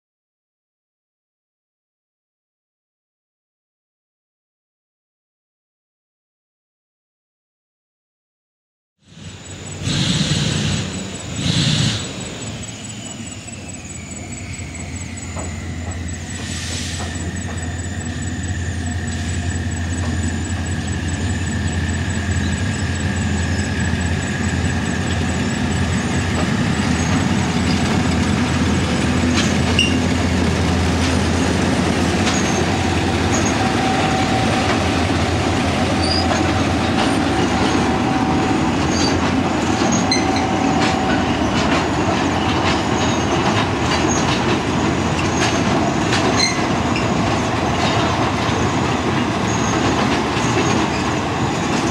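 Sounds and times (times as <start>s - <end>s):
thin steady whine: 9.0s - 43.8s
locomotive engine droning: 9.0s - 51.9s
train wheels clacking: 9.2s - 51.9s.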